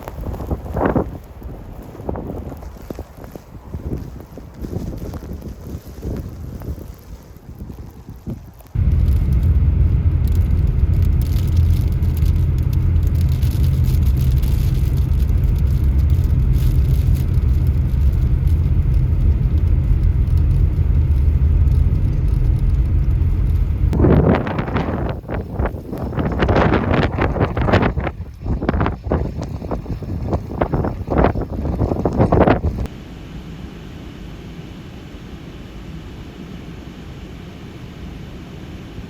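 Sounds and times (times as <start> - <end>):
wind gusting on microphone: 0.0 - 32.9
vehicle engine droning: 8.8 - 33.7.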